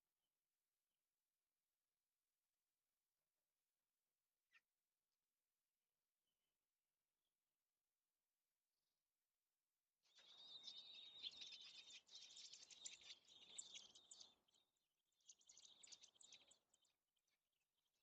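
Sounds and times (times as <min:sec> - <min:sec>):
robins chirping rapidly: 0:10.1 - 0:14.6, 0:15.2 - 0:16.9.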